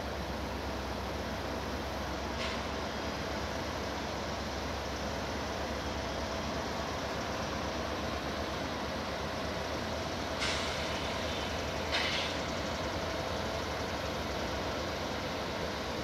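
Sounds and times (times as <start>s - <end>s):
distant diesel locomotives droning: 0.0s - 16.0s.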